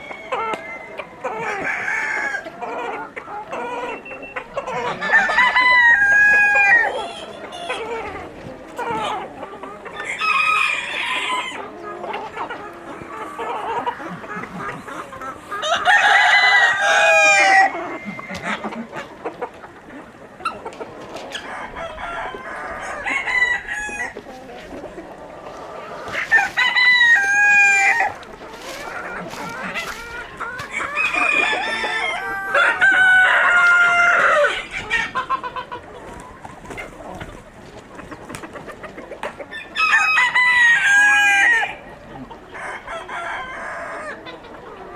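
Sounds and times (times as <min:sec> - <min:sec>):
hens clucking: 0:00.0 - 0:44.9
roosters crowing: 0:00.0 - 0:44.9.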